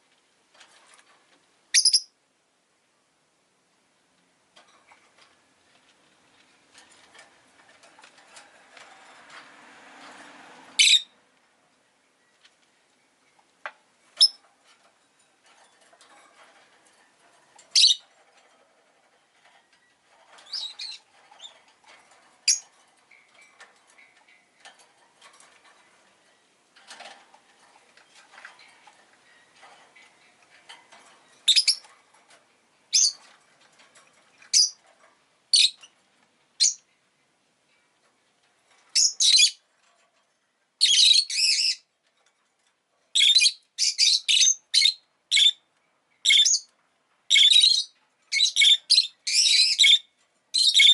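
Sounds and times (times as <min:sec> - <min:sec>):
lovebird chirping: 0:01.7 - 0:02.1, 0:10.8 - 0:11.2, 0:14.2 - 0:14.4, 0:17.7 - 0:18.0, 0:19.8 - 0:21.6, 0:31.4 - 0:31.9, 0:32.9 - 0:33.2, 0:34.5 - 0:34.8, 0:35.5 - 0:35.8, 0:36.6 - 0:36.8, 0:39.0 - 0:39.6, 0:40.8 - 0:41.8, 0:43.2 - 0:45.6, 0:46.2 - 0:46.7, 0:47.3 - 0:50.9.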